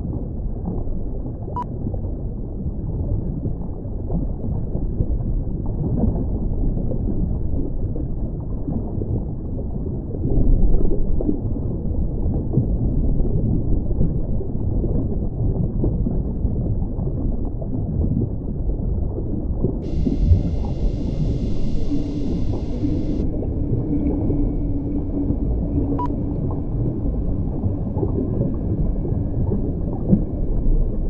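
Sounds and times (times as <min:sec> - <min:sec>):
deep rumbling noise: 0:19.8 - 0:31.0.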